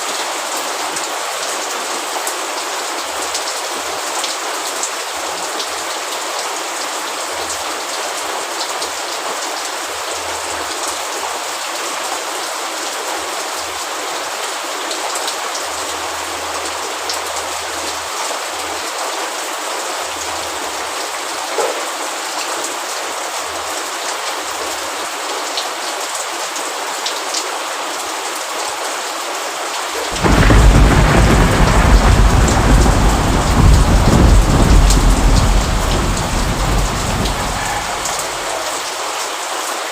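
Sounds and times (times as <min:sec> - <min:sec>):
steady rain falling: 0:00.0 - 0:39.9
thunder rumbling: 0:30.0 - 0:38.7.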